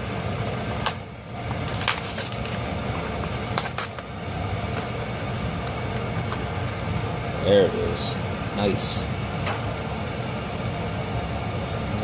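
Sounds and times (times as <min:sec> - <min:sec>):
steady background hum: 0:00.0 - 0:12.0
plastic blister pack crackling: 0:00.5 - 0:04.9.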